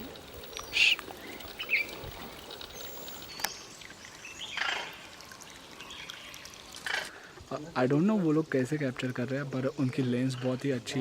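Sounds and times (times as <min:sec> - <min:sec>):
birds chirping: 0:00.0 - 0:06.4
faint steady hiss: 0:00.0 - 0:11.0
harsh bird call: 0:00.6 - 0:01.9
high bird whistle: 0:00.6 - 0:02.0.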